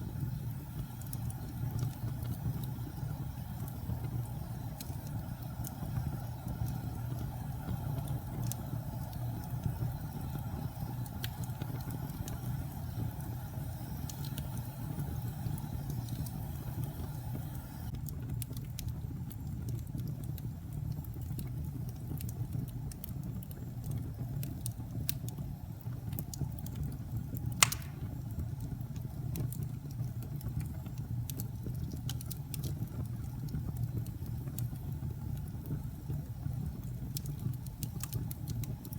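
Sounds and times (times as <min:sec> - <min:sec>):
fire crackling in fireplace: 0:00.0 - 0:38.9
sharp pop of fire: 0:27.6 - 0:28.3.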